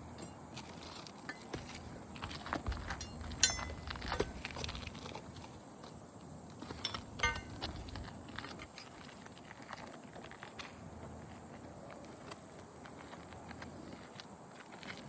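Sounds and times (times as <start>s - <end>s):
ringing metal clinks: 2.8s - 4.4s, 6.8s - 7.6s.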